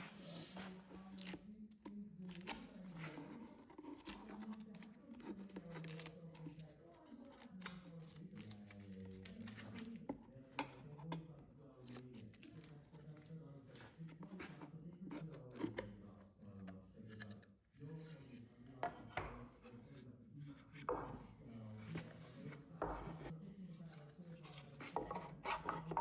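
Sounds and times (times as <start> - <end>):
quiet background music: 0.0 - 26.0
clicks and scraping on wood: 16.6 - 20.0, 20.6 - 23.3, 23.9 - 26.0.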